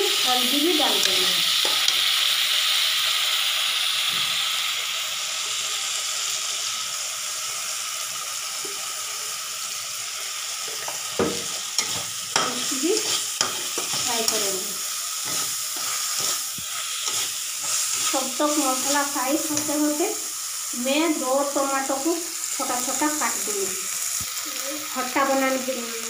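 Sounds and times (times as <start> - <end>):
food sizzling in hot oil: 0.0 - 26.0
metal spatula scraping pan: 11.8 - 14.5, 15.2 - 19.8.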